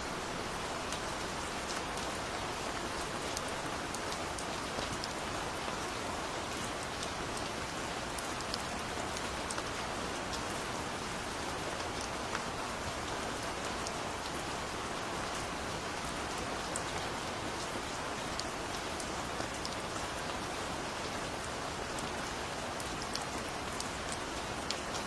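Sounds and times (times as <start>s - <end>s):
gentle rain falling: 0.0s - 25.0s.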